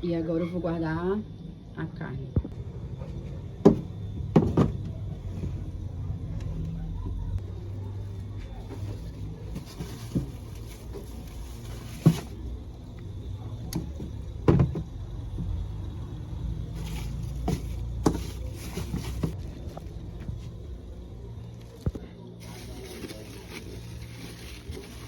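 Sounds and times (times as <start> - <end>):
steady low hum: 0.0 - 25.0
food packages knocking in a fridge: 13.7 - 15.6.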